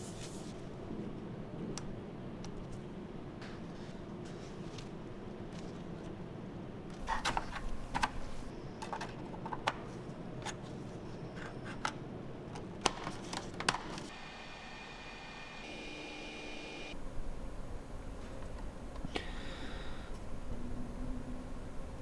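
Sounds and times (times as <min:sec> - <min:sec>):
steady high whine: 0:14.1 - 0:22.0.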